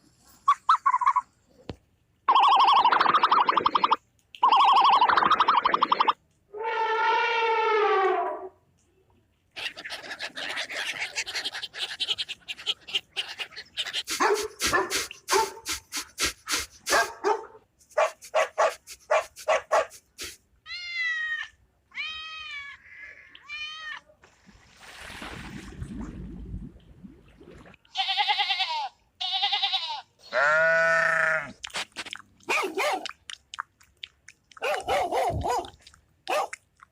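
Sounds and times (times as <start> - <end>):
dog barking: 14.2 - 15.7, 16.9 - 20.0, 32.5 - 33.1, 34.6 - 36.6
cat meowing: 20.7 - 24.1.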